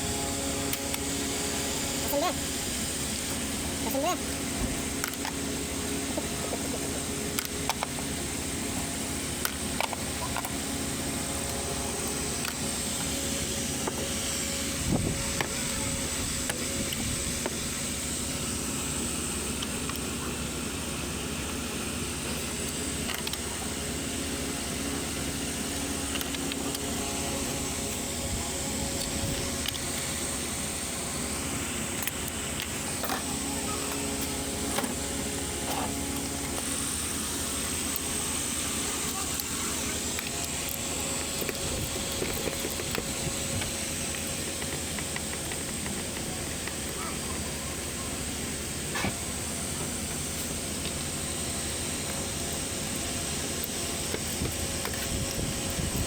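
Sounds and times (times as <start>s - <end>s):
steady mechanical hum: 0.0s - 56.0s.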